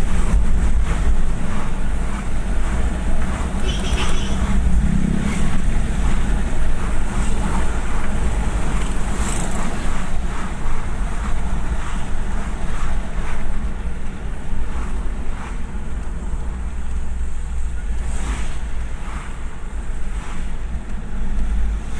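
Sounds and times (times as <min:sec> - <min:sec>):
diesel engine rumbling: 0:00.0 - 0:21.9.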